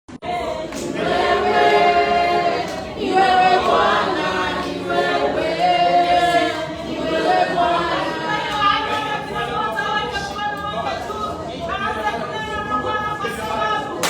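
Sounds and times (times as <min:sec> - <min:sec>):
choir singing unaccompanied: 0:00.1 - 0:09.8.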